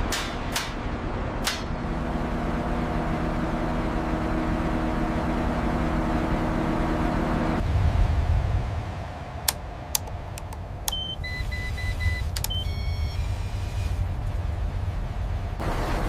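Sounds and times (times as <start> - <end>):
low rumble: 0.0 - 16.0
steady rushing noise: 6.5 - 10.9
sharp clicks: 9.5 - 11.0
multi-tone hum: 10.0 - 16.0.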